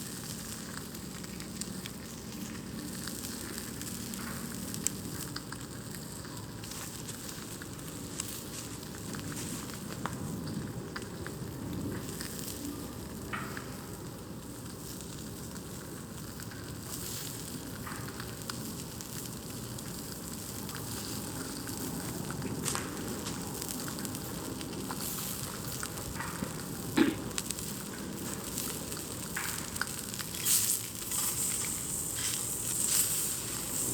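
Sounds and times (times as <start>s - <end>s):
campfire hissing and crackling: 0.0s - 33.9s
loud fire pop: 26.0s - 32.7s.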